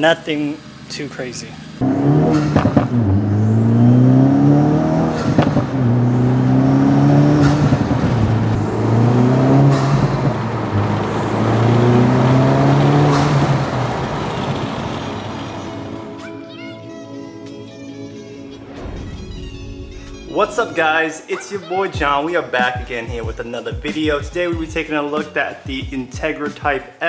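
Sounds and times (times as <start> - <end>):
exhaust cracks: 0.0 - 16.2
car engine accelerating through gears: 1.5 - 16.2.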